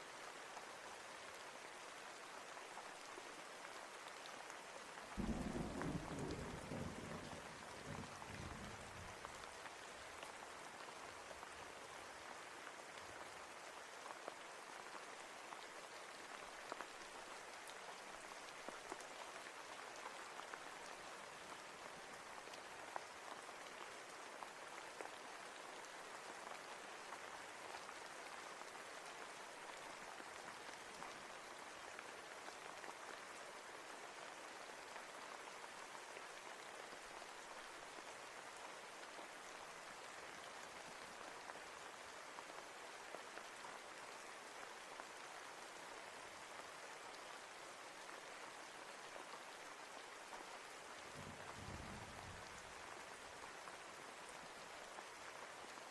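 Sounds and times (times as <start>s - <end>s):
steady rain: 0.0s - 55.9s
raindrops ticking: 5.2s - 9.0s
thunder rumble: 5.2s - 9.0s.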